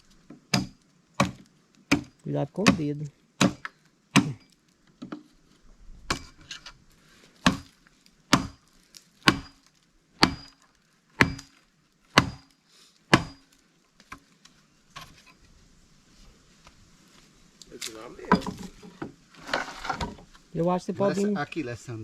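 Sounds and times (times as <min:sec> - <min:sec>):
hammer striking wooden wedge: 0:00.5 - 0:04.4, 0:07.4 - 0:07.7, 0:08.3 - 0:08.6, 0:09.2 - 0:09.6, 0:10.2 - 0:10.6, 0:11.2 - 0:11.5, 0:12.1 - 0:12.5, 0:13.1 - 0:13.5.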